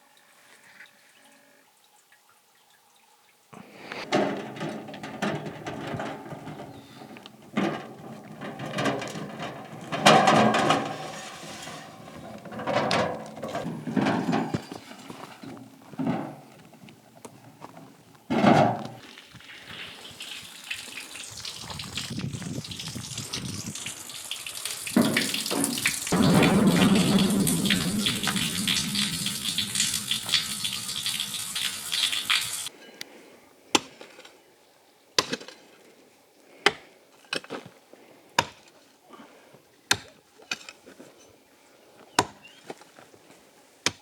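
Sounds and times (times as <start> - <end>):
water splashing and sloshing: 3.6 - 15.4, 18.3 - 32.7
running water rushing: 19.0 - 32.7.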